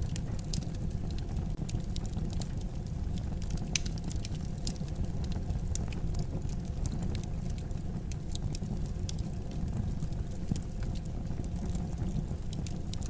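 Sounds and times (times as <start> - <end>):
fire crackling in a fireplace: 0.0 - 13.0.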